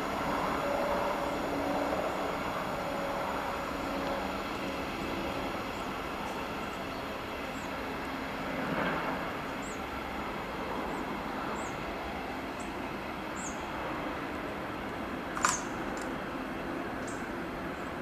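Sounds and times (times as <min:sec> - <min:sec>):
train rolling: 0:00.0 - 0:18.0.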